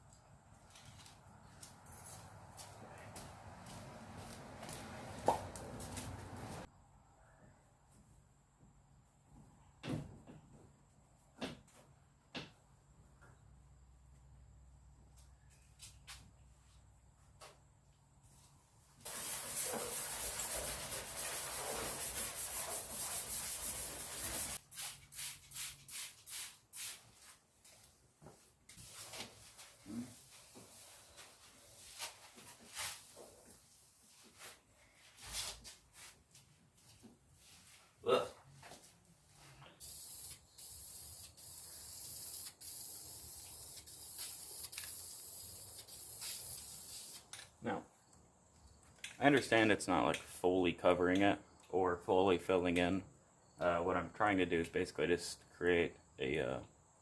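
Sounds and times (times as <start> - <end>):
sandpaper rubbing painted metal: 19.1 - 27.4, 39.8 - 47.3.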